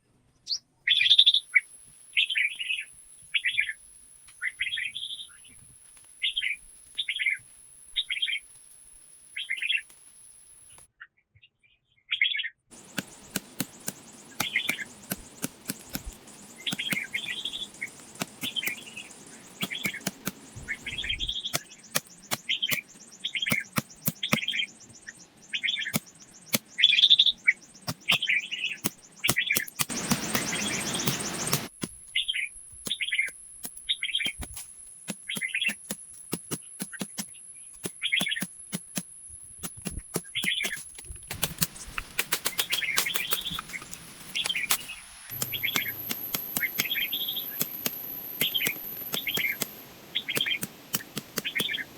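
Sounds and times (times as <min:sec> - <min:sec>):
bird chirping: 0:00.4 - 0:05.6, 0:11.7 - 0:39.0, 0:39.7 - 0:51.9
sharp taps: 0:12.7 - 0:24.6, 0:27.8 - 0:32.0, 0:33.6 - 0:51.9
steady hiss: 0:12.7 - 0:25.0, 0:27.8 - 0:32.0, 0:33.6 - 0:51.9.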